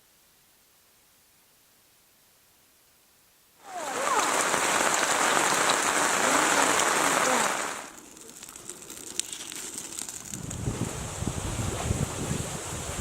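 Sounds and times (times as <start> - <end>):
water hissing: 3.6 - 13.0.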